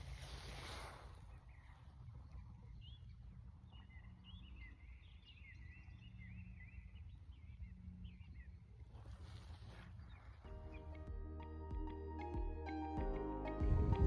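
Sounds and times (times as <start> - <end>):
small birds chirping: 1.2 - 8.8.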